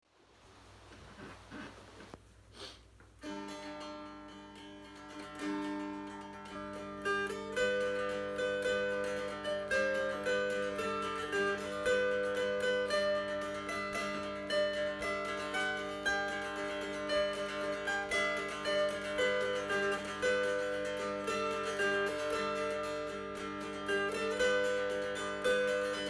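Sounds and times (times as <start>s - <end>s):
dulcimer strum with drone strings: 3.2s - 26.0s
plucked dulcimer melody: 3.2s - 26.0s.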